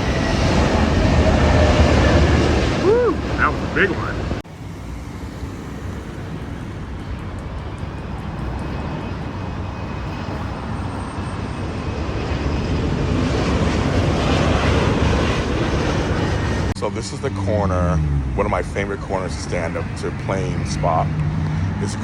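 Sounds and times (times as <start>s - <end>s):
jet airliner engine rush: 0.0s - 22.0s.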